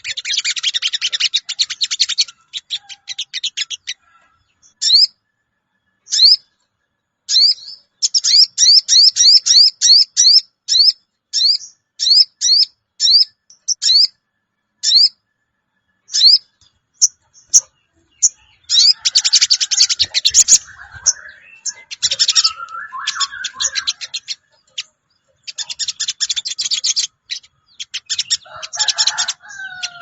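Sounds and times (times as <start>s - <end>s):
bird calling cuwit notes: 17.4s - 30.0s.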